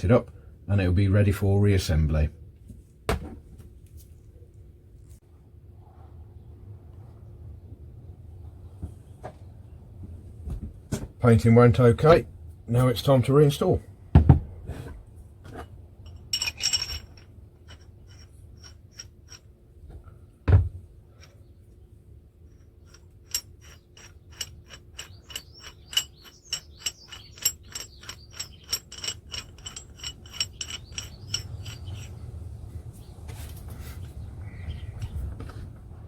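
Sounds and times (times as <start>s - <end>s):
metal car jack parts clinking: 16.1s - 19.5s, 22.5s - 32.2s.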